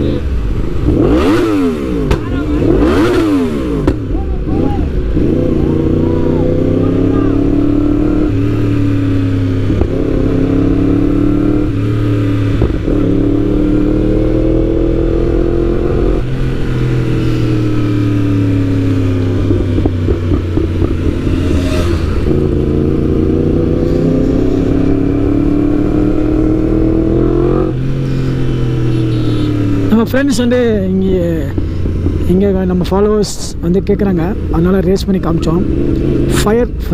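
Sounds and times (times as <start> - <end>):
superbike engines revving: 0.0 - 36.9
sharp exhaust pops: 2.0 - 2.3, 3.8 - 4.1, 18.8 - 21.4.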